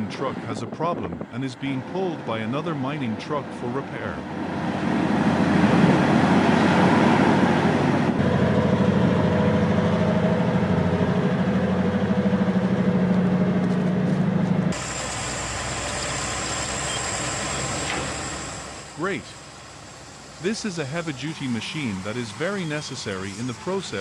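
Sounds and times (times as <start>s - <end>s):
diesel engines running: 0.0s - 24.0s
thin high whine: 14.7s - 24.0s.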